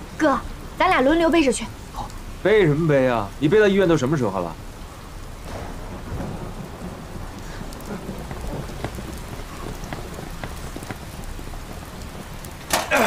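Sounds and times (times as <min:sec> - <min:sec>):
heavy rain on pavement: 0:00.0 - 0:13.0
low rumble: 0:04.9 - 0:12.7.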